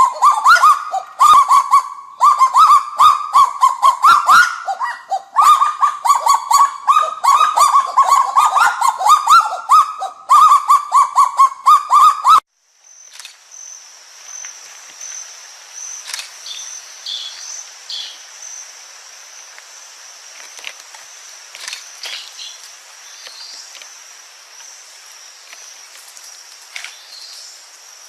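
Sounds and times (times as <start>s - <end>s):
bird barking calls: 0.0s - 12.4s.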